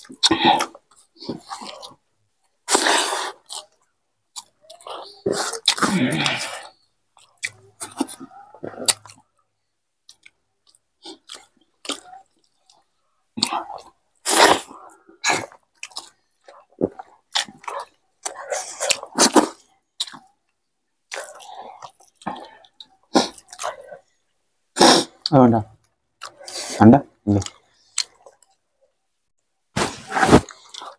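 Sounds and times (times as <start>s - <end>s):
people chewing and smacking: 0.0s - 24.4s, 25.1s - 29.0s, 29.8s - 30.9s.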